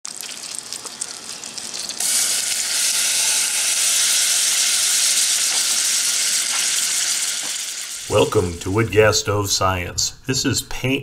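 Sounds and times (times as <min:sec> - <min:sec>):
butter bubbling and crackling: 0:00.0 - 0:02.7
shrimp sizzling in butter: 0:00.0 - 0:08.8.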